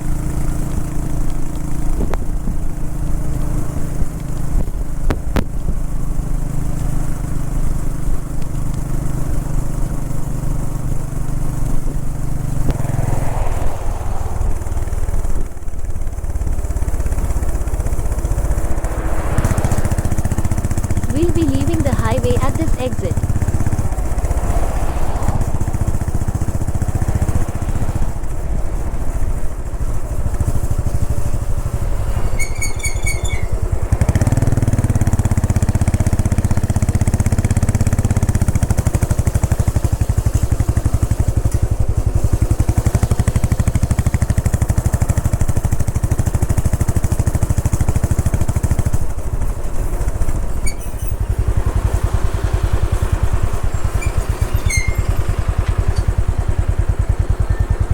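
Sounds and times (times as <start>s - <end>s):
motorcycle engine running: 0.0s - 57.9s
wind rushing: 12.5s - 21.1s, 23.3s - 28.8s.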